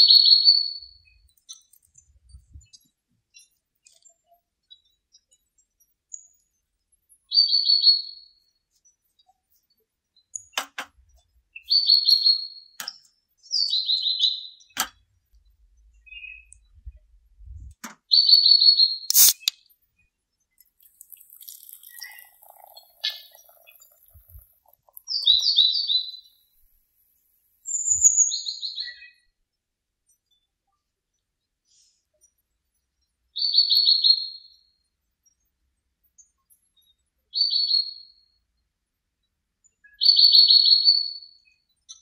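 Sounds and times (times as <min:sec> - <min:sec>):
sharp clicks: 0:19.1 - 0:19.6
songbird singing: 0:20.8 - 0:26.7.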